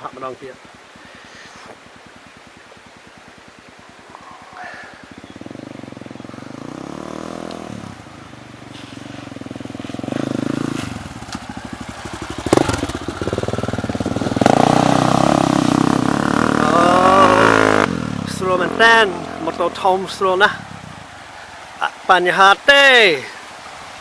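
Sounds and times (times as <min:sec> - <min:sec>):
motorcycle engine revving: 0:05.1 - 0:21.2.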